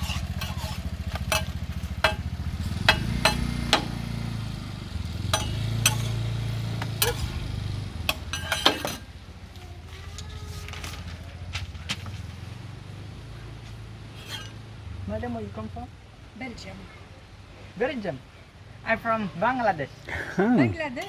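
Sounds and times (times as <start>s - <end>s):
metal utensils clinking on griddle: 0.0s - 4.2s, 5.2s - 9.2s, 14.1s - 14.7s
low engine hum: 0.0s - 17.6s.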